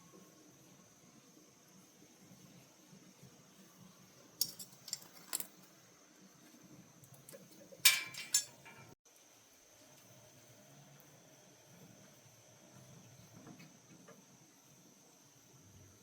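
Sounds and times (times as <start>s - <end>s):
small hard objects clattering: 4.4s - 5.6s.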